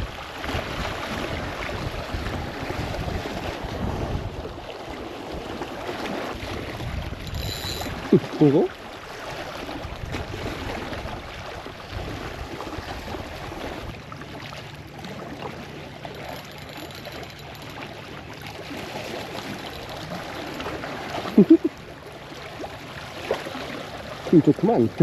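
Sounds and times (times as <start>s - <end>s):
seawater sloshing and trickling: 0.0s - 25.0s
short voice: 21.4s - 21.7s.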